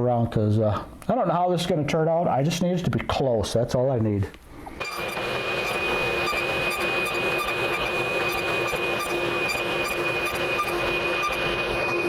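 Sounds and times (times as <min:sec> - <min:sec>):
table saw running: 0:04.8 - 0:12.0.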